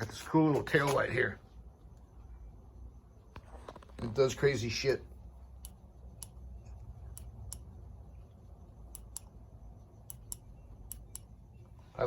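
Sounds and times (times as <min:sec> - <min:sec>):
bike light push-button clicks: 0:07.1 - 0:07.7, 0:08.8 - 0:09.4, 0:10.0 - 0:11.4.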